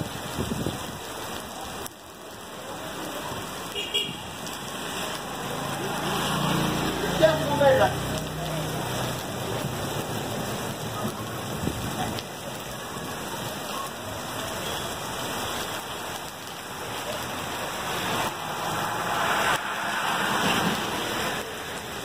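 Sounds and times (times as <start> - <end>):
heavy rain on pavement: 0.0 - 22.0.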